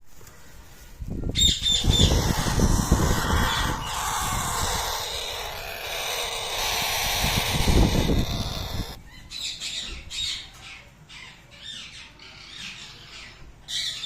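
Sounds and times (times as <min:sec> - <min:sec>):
parrot squawking: 0:01.4 - 0:09.0
low rumbling noise: 0:01.7 - 0:09.0.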